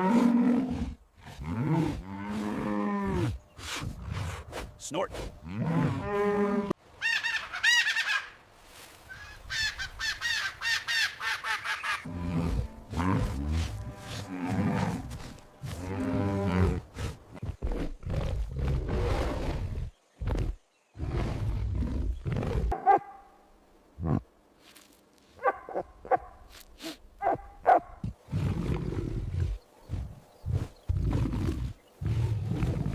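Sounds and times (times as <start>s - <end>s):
big cat roaring and growling: 0.0s - 4.4s, 12.0s - 22.8s, 30.5s - 32.9s.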